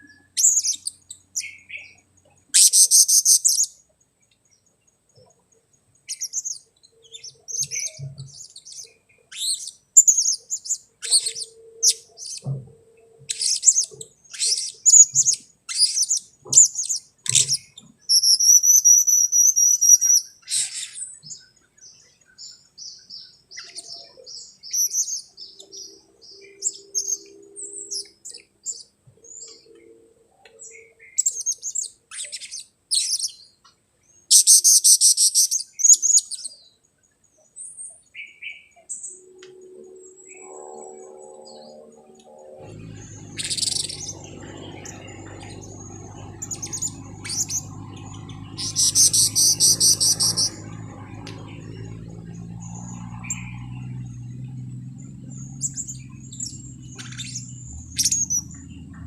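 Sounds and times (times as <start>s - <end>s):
parrot chirps and squeaks: 11.0s - 12.4s, 13.3s - 21.0s, 34.3s - 36.4s, 55.7s - 58.5s
parrot trill: 42.5s - 51.7s.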